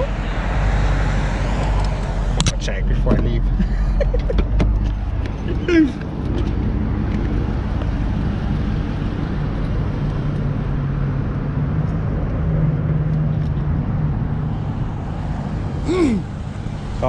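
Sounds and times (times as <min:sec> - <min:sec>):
car exhaust low drone: 0:00.0 - 0:17.0.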